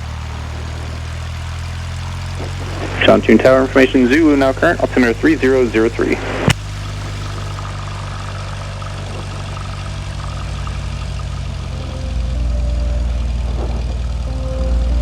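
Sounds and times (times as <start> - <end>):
propeller aircraft engine: 0.0 - 15.0.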